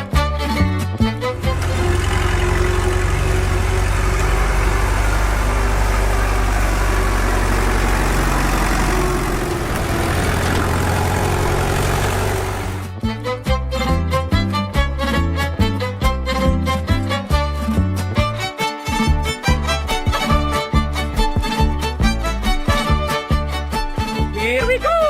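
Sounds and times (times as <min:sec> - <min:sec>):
small engine running: 0:01.1 - 0:13.0.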